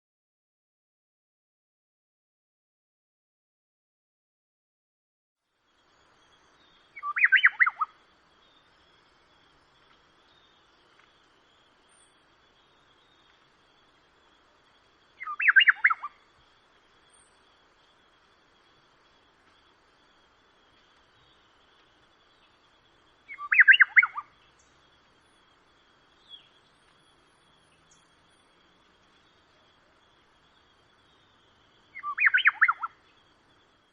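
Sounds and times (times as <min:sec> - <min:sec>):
songbird singing: 0:05.5 - 0:33.9
distant bird calls: 0:05.7 - 0:33.9
bird whistling song phrase: 0:06.9 - 0:08.0, 0:15.2 - 0:16.2, 0:23.3 - 0:24.7, 0:31.9 - 0:33.1.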